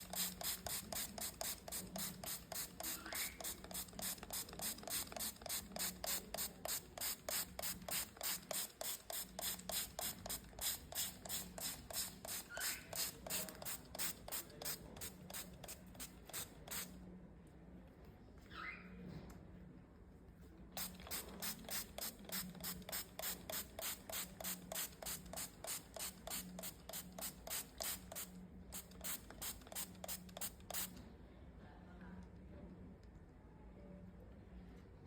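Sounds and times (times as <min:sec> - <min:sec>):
spray bottle puffs: 0:00.0 - 0:16.9, 0:20.8 - 0:31.0.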